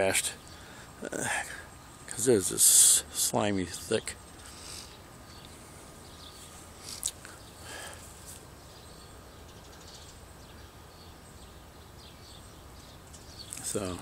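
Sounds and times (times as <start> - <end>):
quiet street ambience: 0.0 - 14.0
faint bird chirps: 3.8 - 14.0.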